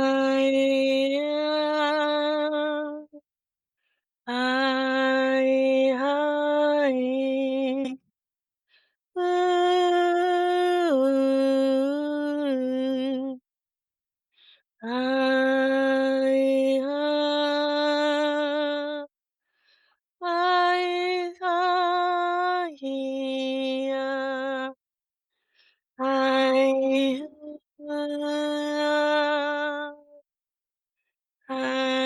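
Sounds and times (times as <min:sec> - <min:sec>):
woman singing wordless tones: 0:00.0 - 0:03.3, 0:04.2 - 0:08.1, 0:09.2 - 0:13.6, 0:14.8 - 0:19.2, 0:20.2 - 0:24.8, 0:26.0 - 0:30.3, 0:31.4 - 0:32.0.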